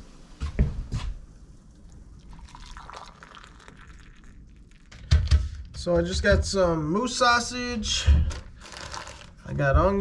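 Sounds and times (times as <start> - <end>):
liquid poured into cup: 1.7 - 5.0, 8.6 - 9.4.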